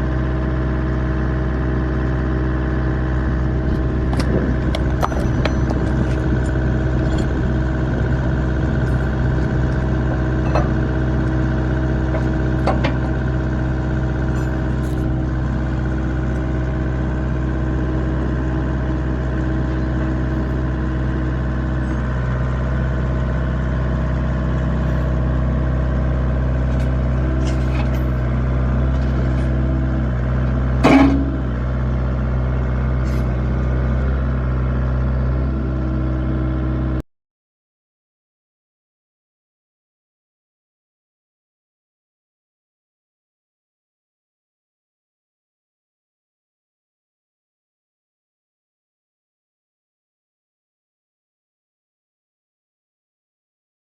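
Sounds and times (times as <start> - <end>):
excavator diesel engine running: 0.0 - 37.0
loud metallic clank: 4.1 - 7.3, 10.4 - 11.4, 12.1 - 13.2, 30.8 - 31.6.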